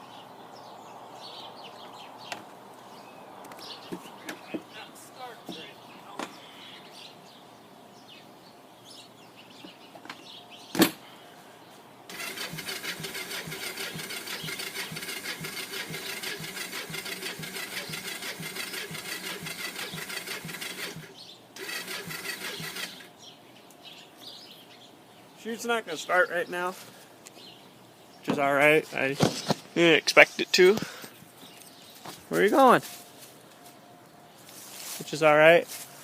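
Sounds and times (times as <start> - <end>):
starter cranking engine: 12.1 - 23.1.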